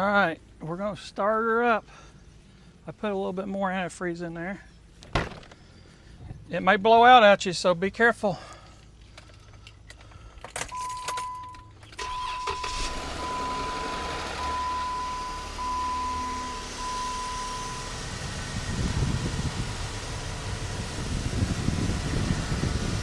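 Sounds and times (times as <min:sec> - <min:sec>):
car engine starting and idling: 0:08.6 - 0:23.0
warning chime beeping: 0:10.8 - 0:18.2.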